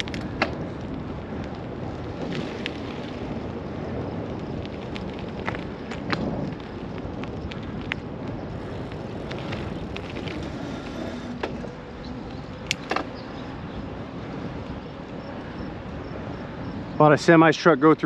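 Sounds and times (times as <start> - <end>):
wind: 0.0 - 18.0
road traffic rushing: 8.5 - 16.7.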